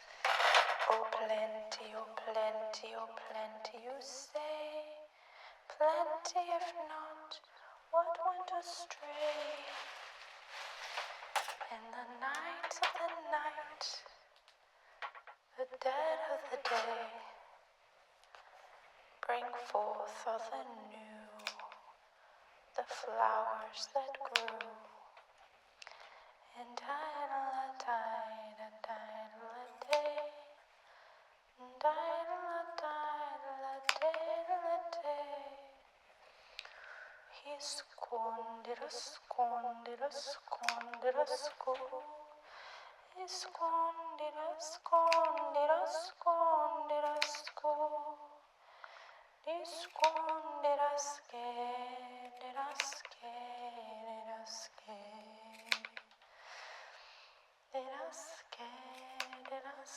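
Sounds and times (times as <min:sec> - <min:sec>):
long in-breath: 0:05.1 - 0:05.7, 0:25.8 - 0:26.4, 0:30.8 - 0:31.4, 0:36.2 - 0:37.3, 0:42.4 - 0:43.0, 0:48.6 - 0:49.4, 0:56.2 - 0:57.6
woman singing long held notes: 0:05.7 - 0:09.9, 0:15.6 - 0:17.4, 0:19.2 - 0:21.8, 0:22.8 - 0:25.0, 0:31.6 - 0:35.8, 0:37.3 - 0:42.4, 0:43.1 - 0:48.4, 0:49.4 - 0:56.0.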